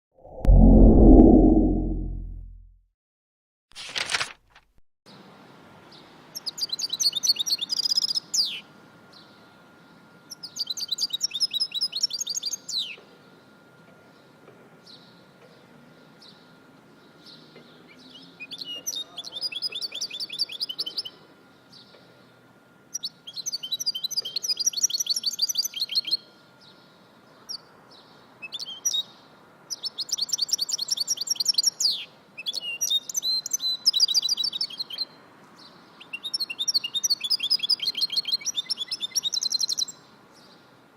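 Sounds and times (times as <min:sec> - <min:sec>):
songbird singing trilled phrases: 0:23.0 - 0:26.2, 0:29.8 - 0:35.1, 0:36.0 - 0:40.0.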